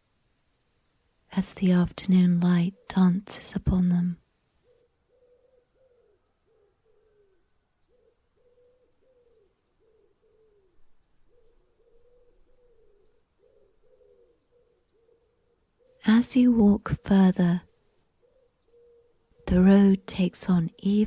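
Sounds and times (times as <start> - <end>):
cricket chirps: 4.2 - 16.5, 17.3 - 20.3
low hooting bird calls: 4.6 - 16.3, 18.2 - 19.6.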